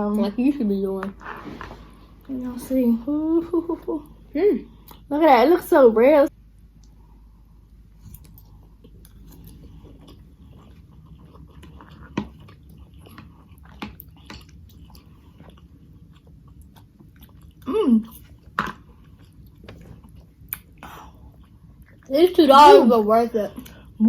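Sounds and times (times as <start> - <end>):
chewing noodles: 8.0 - 22.1.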